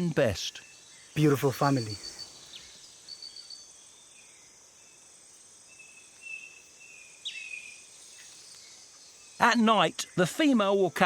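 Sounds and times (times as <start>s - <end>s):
insects droning: 0.0s - 11.0s
whistled calls: 0.4s - 3.7s.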